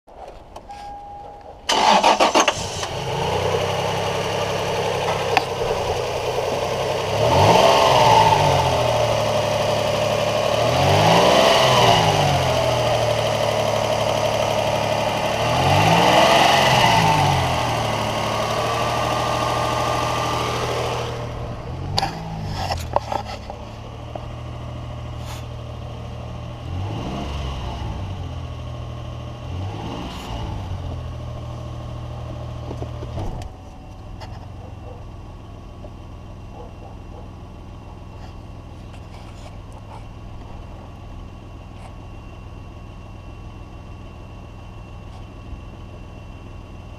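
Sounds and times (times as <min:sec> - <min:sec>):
engine starting: 0:01.7 - 0:03.0
engine idling and revving: 0:01.7 - 0:46.9.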